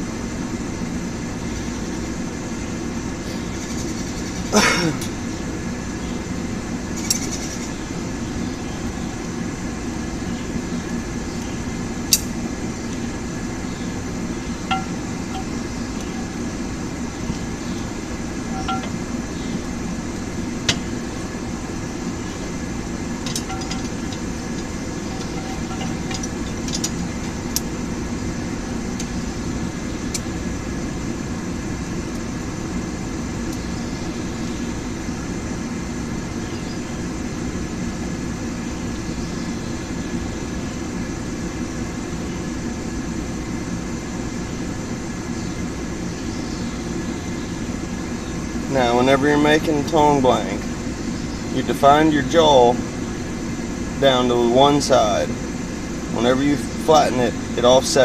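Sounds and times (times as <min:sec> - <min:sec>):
metal tools clinking: 0:14.7 - 0:16.4, 0:18.5 - 0:19.0, 0:23.2 - 0:27.4.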